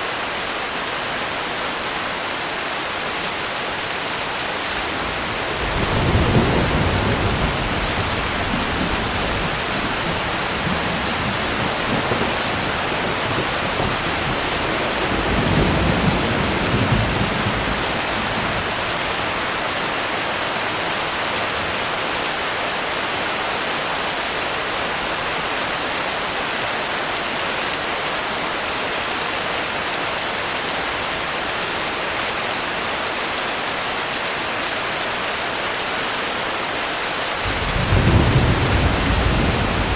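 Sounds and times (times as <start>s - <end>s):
heavy rain: 0.0s - 39.9s
thunder rumbles: 4.8s - 19.2s, 37.4s - 39.9s.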